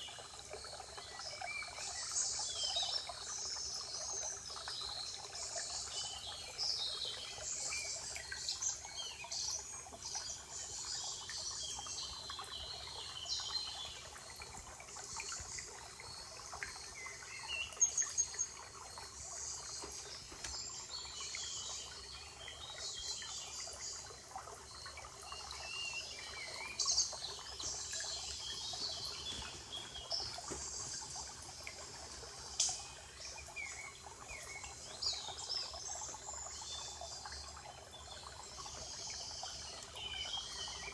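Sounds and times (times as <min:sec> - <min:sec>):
birds chirping: 0:24.8 - 0:35.8.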